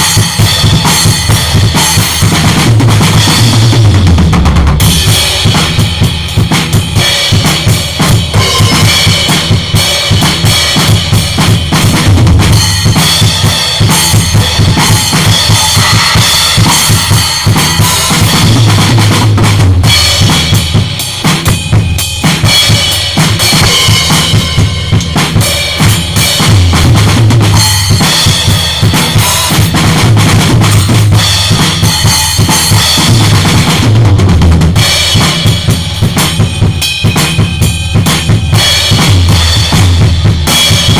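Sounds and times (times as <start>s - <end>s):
drum kit groove: 0.0s - 40.9s.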